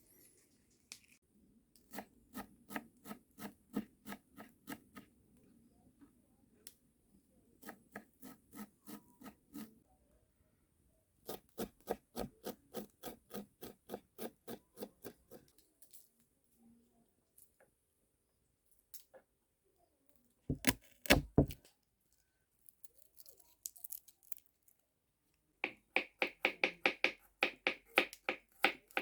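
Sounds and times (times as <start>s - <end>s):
knife chopping on wooden board: 20.5s - 21.6s, 25.6s - 29.0s.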